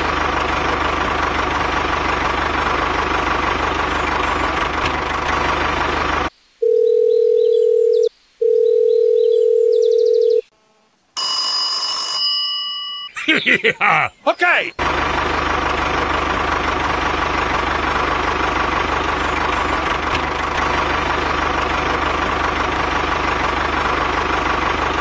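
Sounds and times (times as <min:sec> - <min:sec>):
engine-like running sound: 0:00.0 - 0:06.3, 0:13.7 - 0:25.0
long telephone beeps: 0:06.6 - 0:10.5, 0:11.2 - 0:13.2
bright ringing chime: 0:11.2 - 0:13.2.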